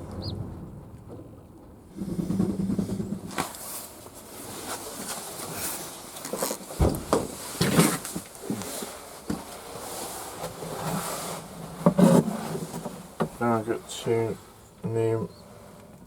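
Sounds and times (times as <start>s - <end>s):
knocks and rustles: 0.0s - 13.5s.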